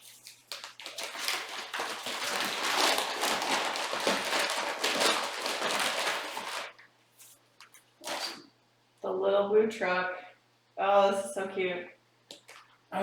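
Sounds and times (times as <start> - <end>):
gift paper rustling and tearing: 0.0 - 7.4, 8.0 - 8.4.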